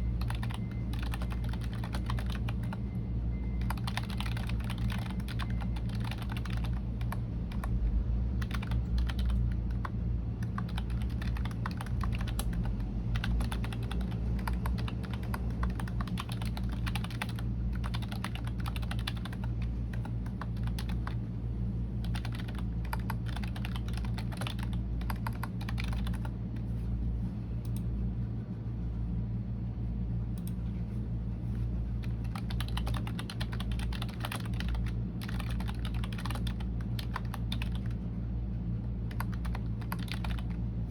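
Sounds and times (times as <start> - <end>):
computer keyboard typing: 0.0 - 2.8, 3.6 - 7.8, 8.4 - 21.2, 22.0 - 26.7, 32.0 - 38.0, 39.0 - 40.6
steady low hum: 0.0 - 40.9.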